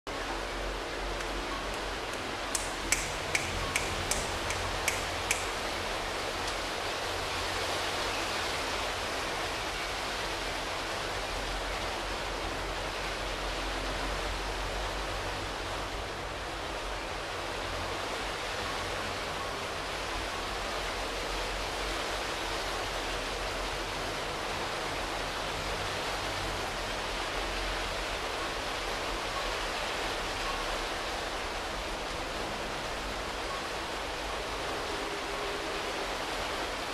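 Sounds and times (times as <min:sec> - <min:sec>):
sharp ticks: 0:01.2 - 0:05.6.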